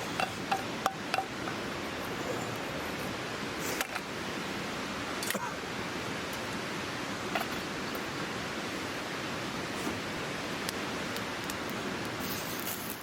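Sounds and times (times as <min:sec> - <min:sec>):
campfire crackling and popping: 0:10.6 - 0:13.0.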